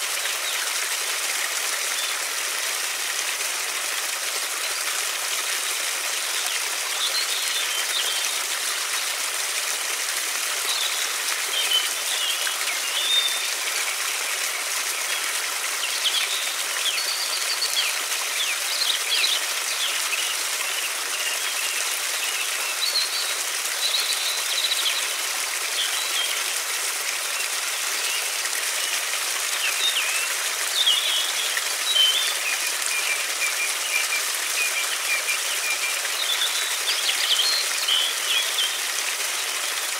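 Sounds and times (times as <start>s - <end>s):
rushing stream: 0.0s - 39.9s
small birds chirping: 27.2s - 39.5s.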